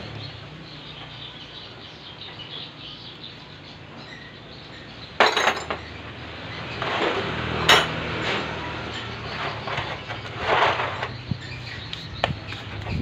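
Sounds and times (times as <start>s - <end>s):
metal tools clinking: 5.2s - 6.0s, 6.8s - 11.6s.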